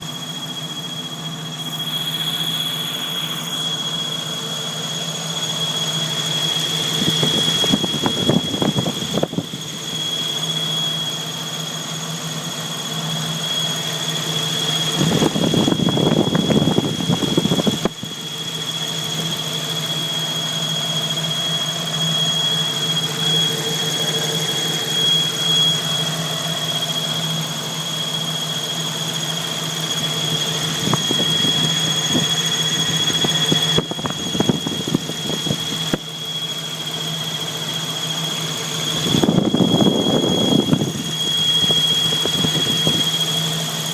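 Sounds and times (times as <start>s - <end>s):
car engine running: 0.0s - 43.9s
high-pitched squeal: 0.0s - 43.9s.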